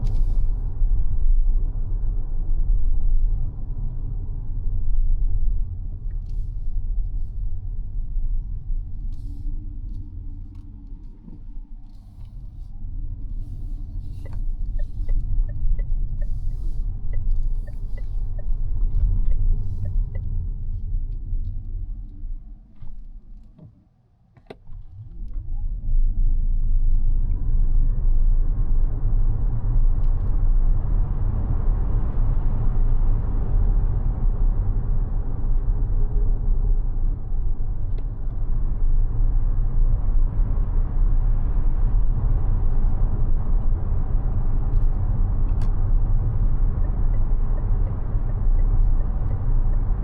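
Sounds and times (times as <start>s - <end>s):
road and tyre rumble: 0.0s - 50.0s
turn signal ticking: 13.8s - 20.4s, 44.9s - 50.0s.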